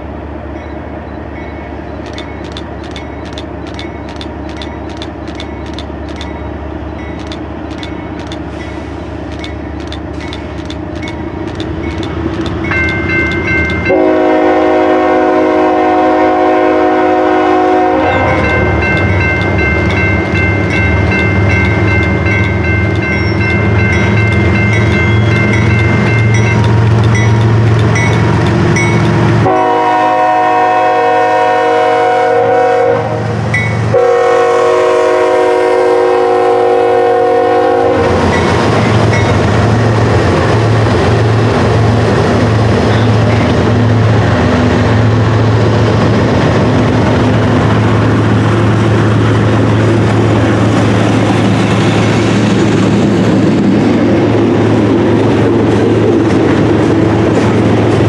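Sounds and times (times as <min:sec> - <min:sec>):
diesel locomotive rumble: 0:00.0 - 0:58.0
train bell ringing: 0:00.5 - 0:14.1, 0:18.1 - 0:29.2, 0:33.5 - 0:33.9, 0:38.2 - 0:39.5, 0:42.9 - 0:43.7
multi-chime air horn blasts: 0:13.5 - 0:20.1.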